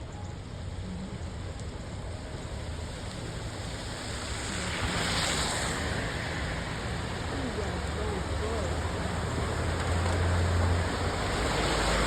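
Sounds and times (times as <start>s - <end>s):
road and engine rumble: 0.0s - 12.0s
heavy rain on a car: 0.1s - 12.0s.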